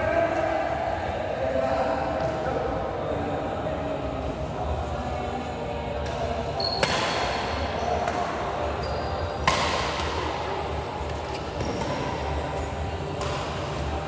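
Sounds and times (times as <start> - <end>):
racket striking shuttlecock: 6.8 - 7.4, 9.4 - 10.2, 13.2 - 13.7.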